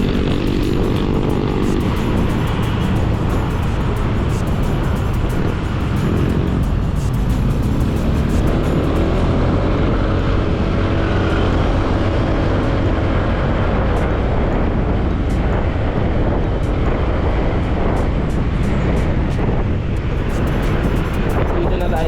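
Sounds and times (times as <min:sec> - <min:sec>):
motorcycle engine: 0:00.0 - 0:22.0
wind rush: 0:00.0 - 0:22.0.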